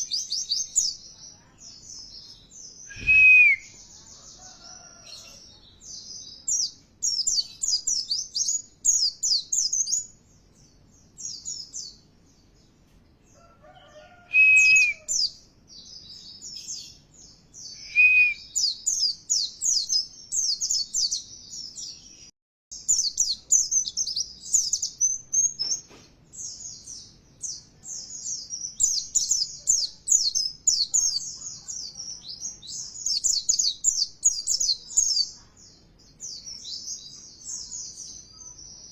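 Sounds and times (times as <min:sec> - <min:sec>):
bird twittering song: 0:00.0 - 0:38.9
low whistled bird notes: 0:02.8 - 0:03.8, 0:17.8 - 0:18.8.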